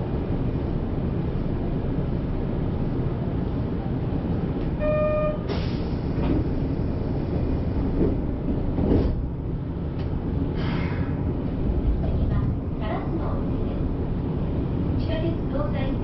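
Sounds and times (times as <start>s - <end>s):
subway train running: 0.0s - 16.0s
short electronic beep: 4.8s - 5.5s.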